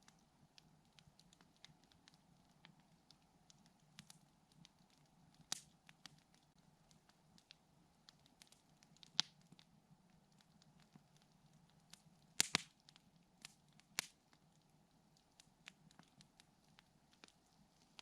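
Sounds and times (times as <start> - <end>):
campfire crackling: 0.0 - 18.0
fire popping sharply: 12.4 - 12.7.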